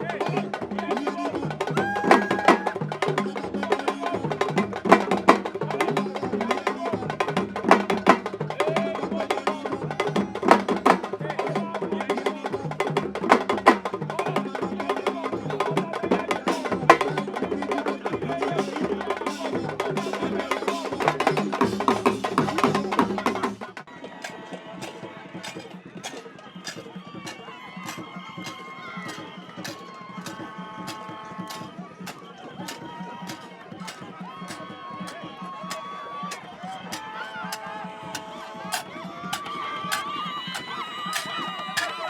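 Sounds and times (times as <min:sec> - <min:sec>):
fast sharp drumming: 0:00.0 - 0:11.7, 0:15.5 - 0:42.0
music with voices: 0:00.0 - 0:42.0.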